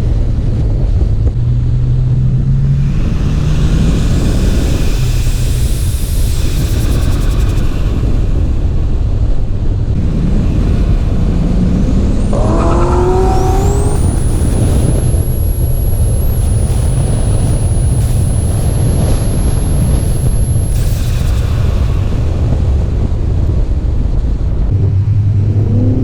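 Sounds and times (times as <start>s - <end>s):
high-pitched whine: 2.4s - 25.9s
car engine accelerating: 9.9s - 26.0s.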